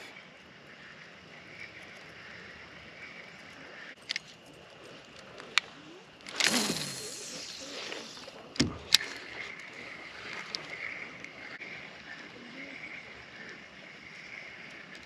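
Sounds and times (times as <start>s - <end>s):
wind hiss: 0.0s - 11.6s
light water: 0.0s - 15.0s.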